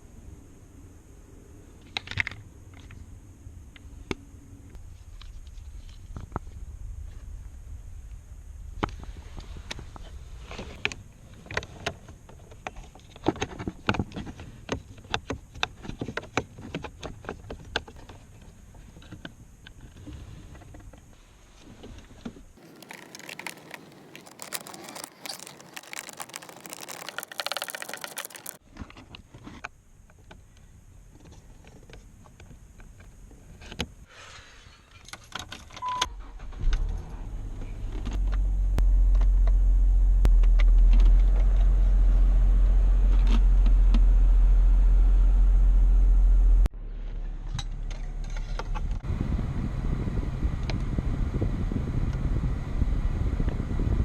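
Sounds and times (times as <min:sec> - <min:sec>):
keys and parts rattling: 0:22.6 - 0:28.6.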